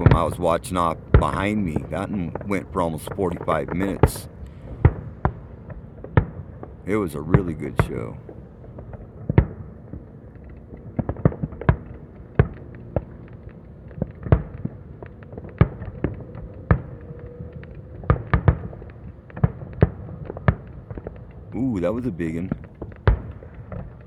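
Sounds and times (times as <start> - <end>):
fireworks bangs: 0.0 - 24.0.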